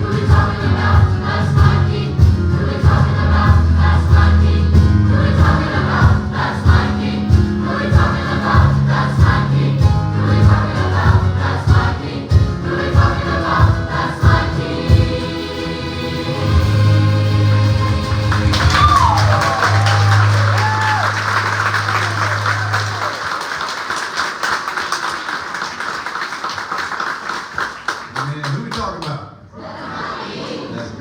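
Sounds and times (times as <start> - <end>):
steady drum beat: 0.0 - 23.3
gospel choir singing: 0.0 - 23.7, 29.5 - 31.0
sustained bass notes: 16.3 - 23.1.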